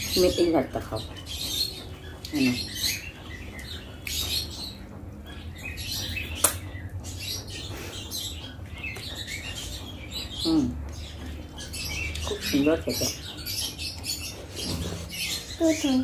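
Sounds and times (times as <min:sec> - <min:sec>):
sharp click: 0:06.4 - 0:06.7.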